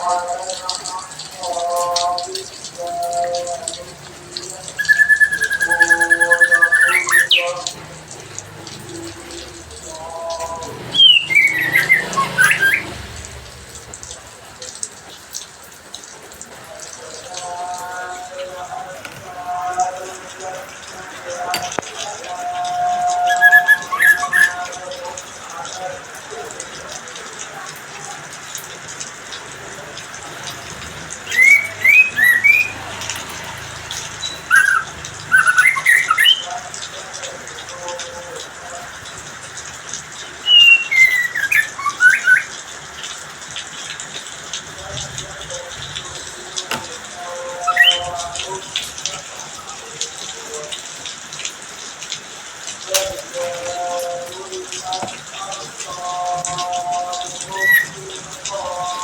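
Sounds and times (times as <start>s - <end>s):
hiss of falling water: 0.0s - 59.0s
bird whistling: 4.6s - 7.8s, 10.9s - 13.3s, 23.2s - 24.7s, 31.2s - 33.1s, 33.9s - 36.6s, 40.4s - 42.6s, 47.6s - 48.2s, 57.4s - 58.1s.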